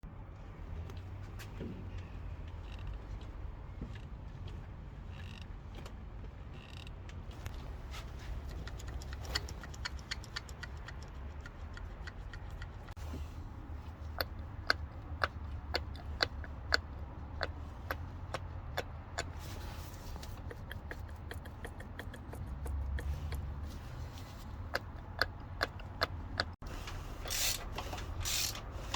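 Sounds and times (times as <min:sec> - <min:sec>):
car engine humming: 0:07.4 - 0:28.9
metallic ticking of timing chain: 0:08.3 - 0:13.0.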